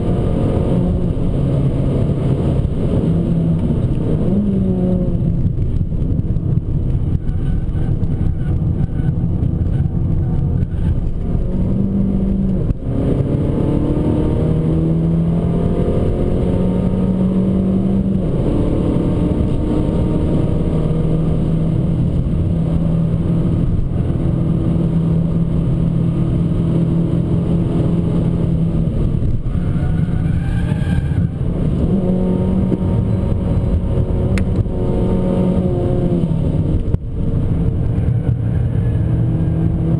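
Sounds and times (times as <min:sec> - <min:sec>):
car engine revving hard: 0:11.4 - 0:29.2, 0:31.2 - 0:37.4.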